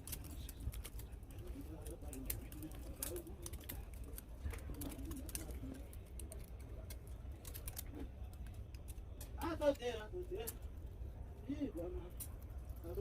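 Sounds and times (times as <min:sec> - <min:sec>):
small parts clicking: 0:00.0 - 0:09.4.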